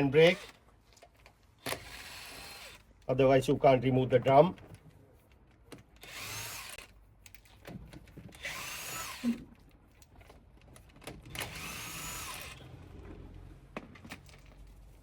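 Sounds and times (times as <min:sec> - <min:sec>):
power tool spinning wheel nuts: 0:00.0 - 0:00.6, 0:01.6 - 0:02.9, 0:06.0 - 0:07.0, 0:08.3 - 0:09.5, 0:11.1 - 0:13.2.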